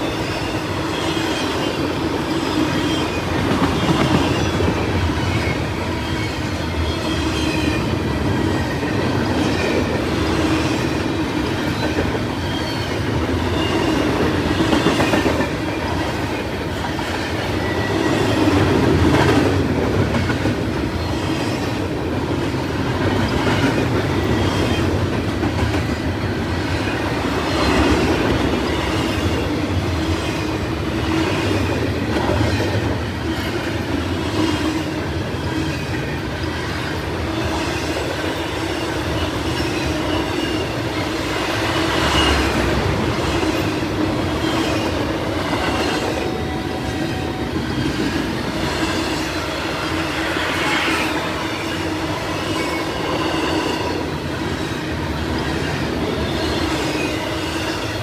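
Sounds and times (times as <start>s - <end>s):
freight train cars rolling past: 0.0s - 58.0s
faint high wheel squeal: 11.7s - 15.0s, 17.3s - 18.6s.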